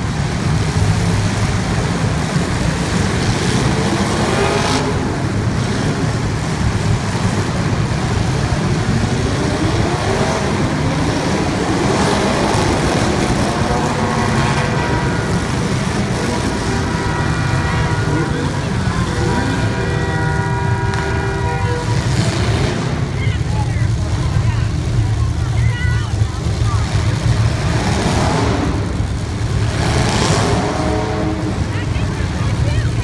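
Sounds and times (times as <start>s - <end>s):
race car engines revving: 0.0s - 33.0s.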